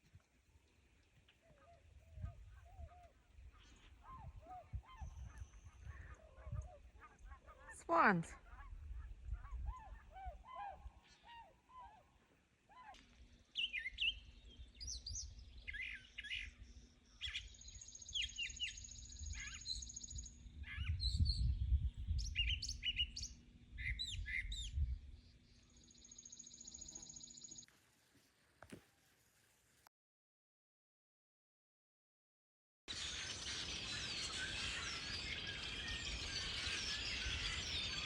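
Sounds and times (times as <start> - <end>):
songbirds chirping: 0.0 - 27.7, 32.9 - 38.0
low wind rumble: 18.8 - 25.7.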